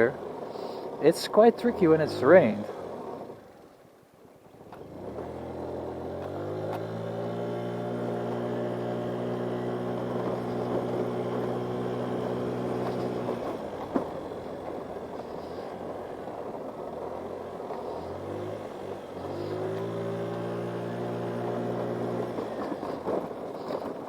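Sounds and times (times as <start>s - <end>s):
scooter engine revving: 4.8s - 23.9s.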